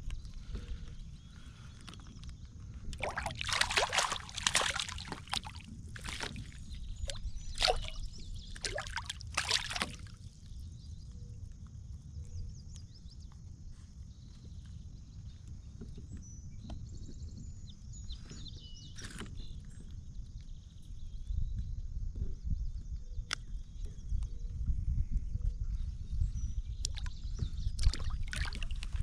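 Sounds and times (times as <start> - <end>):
water splashing and sloshing: 2.9 - 10.2, 27.8 - 29.0.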